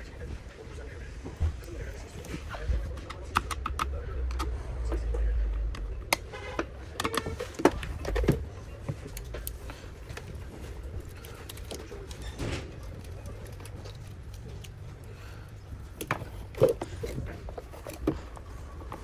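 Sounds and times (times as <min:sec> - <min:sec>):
clicks and taps of small parts: 0:02.2 - 0:04.5.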